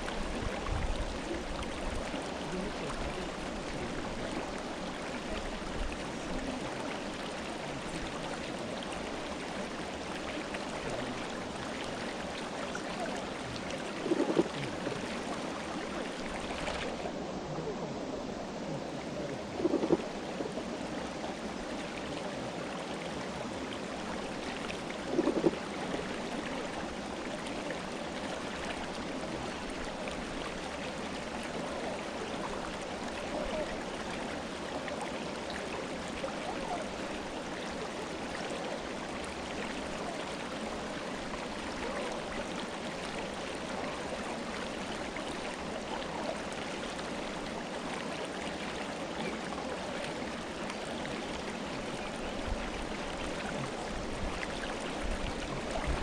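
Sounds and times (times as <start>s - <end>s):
river flowing over rocks: 0.0s - 56.0s
water splash: 14.0s - 15.0s.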